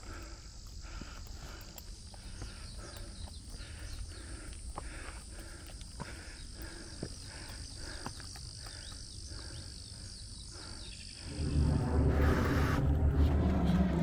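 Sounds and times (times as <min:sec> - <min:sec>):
footsteps on dirt trail: 0:00.0 - 0:10.1
insects trilling: 0:00.0 - 0:14.0
loud low rumble: 0:11.2 - 0:14.0.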